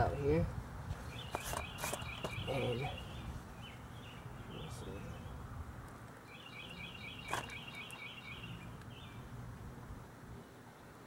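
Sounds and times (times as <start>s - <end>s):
outdoor background noise: 0.0s - 11.0s
songbird trilling: 1.1s - 5.4s, 6.2s - 9.2s.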